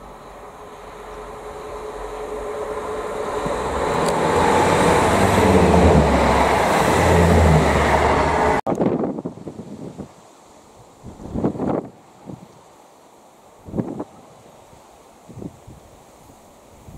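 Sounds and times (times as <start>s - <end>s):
diesel engine humming: 0.0s - 8.6s
train wheels rushing on rail: 0.0s - 8.6s.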